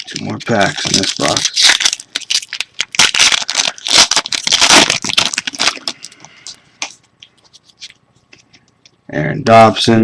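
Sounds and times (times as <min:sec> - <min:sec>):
foil card pack tearing and crinkling: 0:00.0 - 0:06.2.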